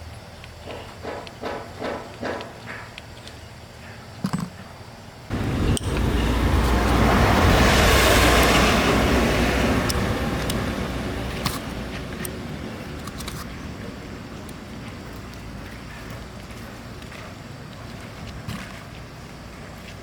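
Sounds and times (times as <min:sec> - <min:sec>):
motor vehicle passing by: 0:05.3 - 0:14.2.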